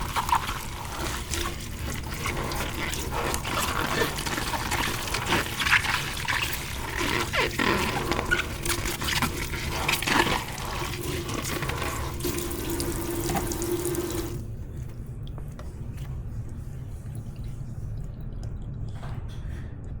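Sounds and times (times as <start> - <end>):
tap water running into sink: 0.0 - 14.5
faint water drips: 0.0 - 20.0.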